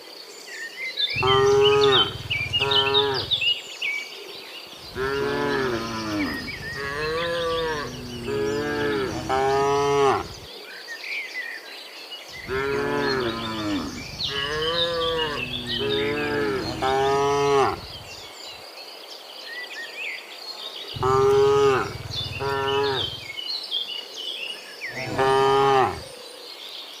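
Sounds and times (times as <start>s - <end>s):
cows mooing: 1.2s - 3.5s, 4.9s - 10.5s, 12.4s - 18.3s, 21.0s - 23.3s, 24.9s - 26.1s.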